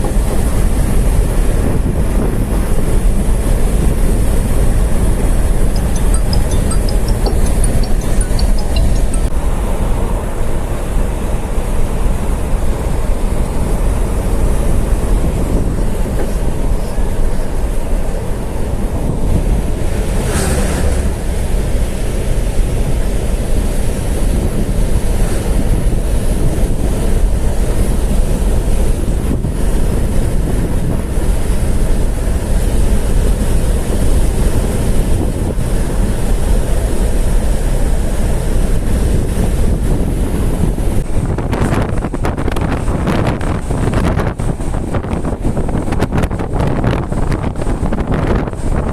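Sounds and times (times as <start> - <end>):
road vehicle rumble from inside: 0.0 - 48.9
wind buffeting microphone: 13.1 - 48.9.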